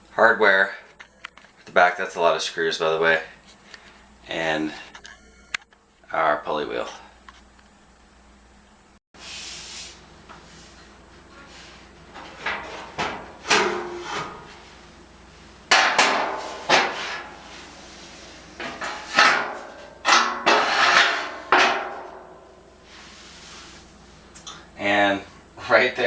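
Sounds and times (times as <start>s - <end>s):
metallic knocks and bangs: 12.2s - 14.6s, 15.7s - 17.4s, 18.6s - 22.6s.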